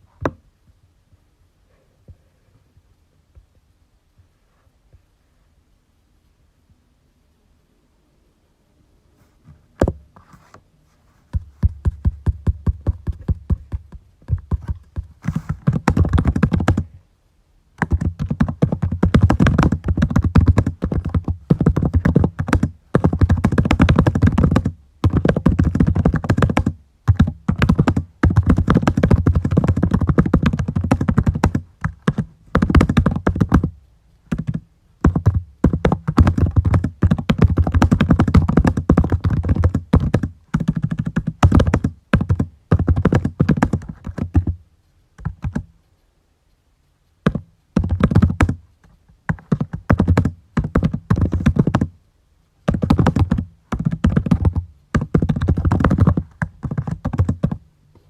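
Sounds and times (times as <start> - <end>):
typing on computer keyboard: 12.0 - 16.9, 17.8 - 44.6, 45.2 - 45.7, 47.2 - 51.9, 52.7 - 57.6.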